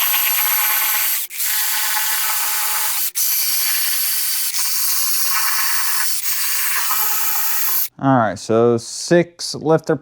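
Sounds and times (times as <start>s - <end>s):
power ratchet whirring: 0.0s - 7.9s.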